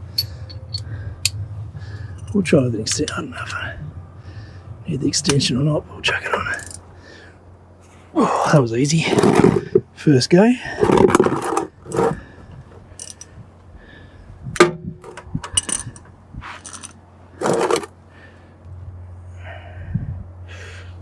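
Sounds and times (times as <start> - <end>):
metallic clinks of tools: 0.0 - 1.4, 13.0 - 13.3.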